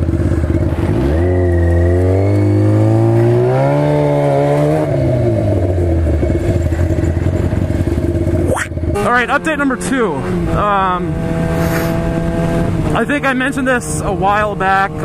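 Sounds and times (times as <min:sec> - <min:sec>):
motorcycle engine pulling away: 0:00.0 - 0:09.1.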